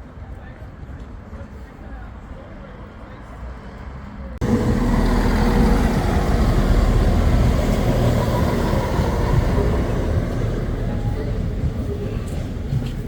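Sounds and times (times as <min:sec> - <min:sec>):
diesel engine running: 0:04.4 - 0:11.9.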